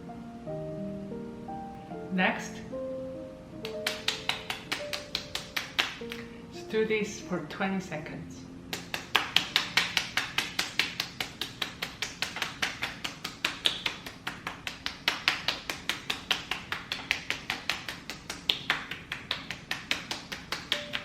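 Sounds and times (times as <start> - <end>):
hands tapping on skin: 3.6 - 6.3, 8.7 - 21.0.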